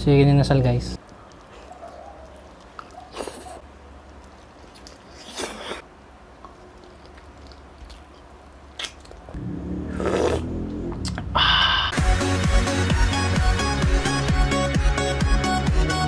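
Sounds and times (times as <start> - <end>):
biting and chewing: 1.0 - 5.8, 6.4 - 11.3
wet mouth noises: 2.4 - 11.7.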